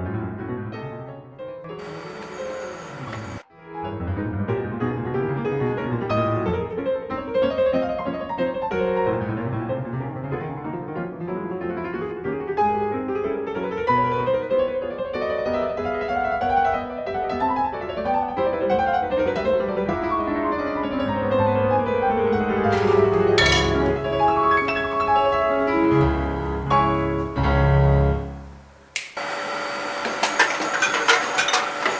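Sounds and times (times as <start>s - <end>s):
gentle piano music: 3.6s - 28.8s.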